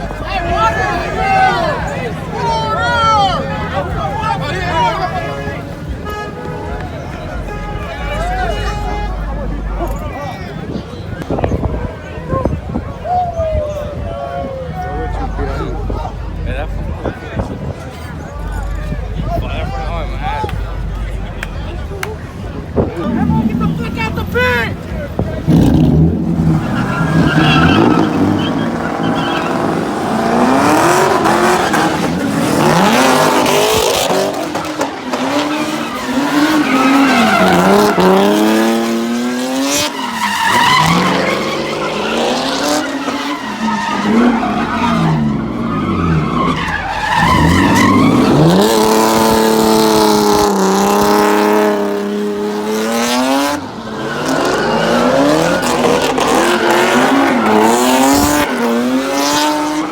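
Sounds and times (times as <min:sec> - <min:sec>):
tyres screeching: 0:00.0 - 0:59.9
car engine revving hard: 0:14.8 - 0:59.9.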